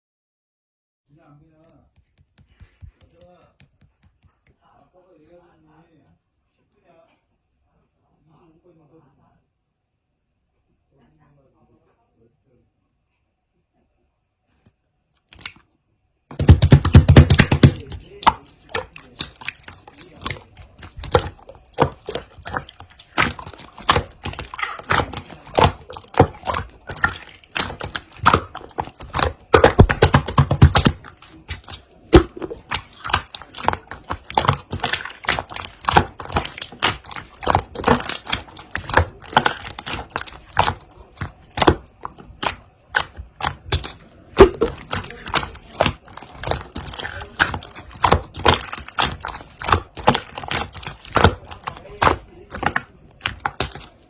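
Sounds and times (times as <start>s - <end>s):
hands squishing slime: 1.6s - 4.6s, 15.2s - 15.6s, 16.3s - 54.0s.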